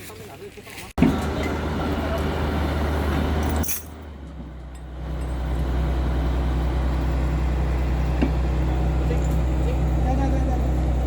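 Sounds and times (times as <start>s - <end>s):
engine running with low hum: 1.0s - 11.0s.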